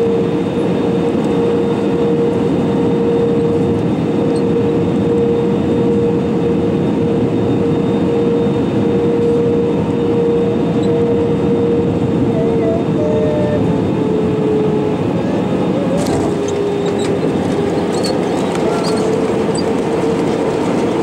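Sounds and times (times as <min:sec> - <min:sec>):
constant hum: 0:00.0 - 0:21.0
engine and airflow rumble: 0:00.0 - 0:21.0.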